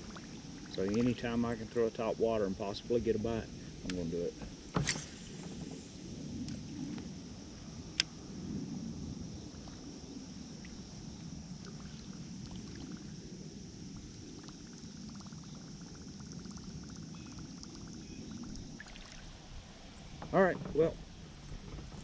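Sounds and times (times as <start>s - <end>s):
water rushing: 18.7s - 19.8s.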